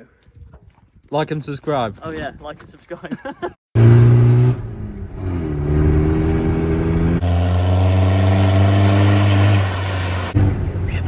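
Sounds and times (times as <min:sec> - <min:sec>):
car engine accelerating: 0:03.8 - 0:11.0.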